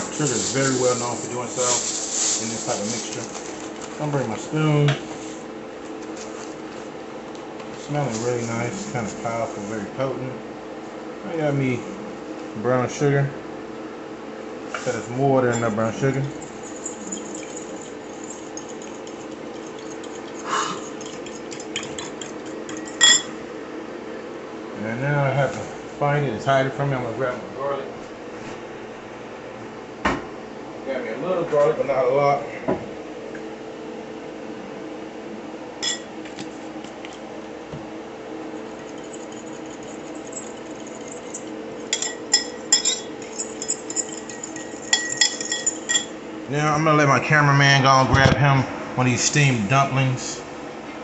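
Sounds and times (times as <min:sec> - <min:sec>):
steady background hum: 0:00.0 - 0:51.0
spoon clinking bowl: 0:15.5 - 0:23.4, 0:35.8 - 0:36.1, 0:38.6 - 0:46.2
spoon scraping bowl: 0:15.6 - 0:23.3, 0:38.6 - 0:46.1.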